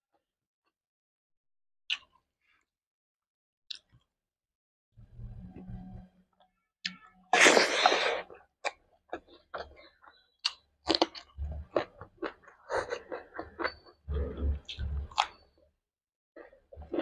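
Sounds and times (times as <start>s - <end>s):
person chewing food: 7.3s - 15.5s, 16.4s - 17.0s.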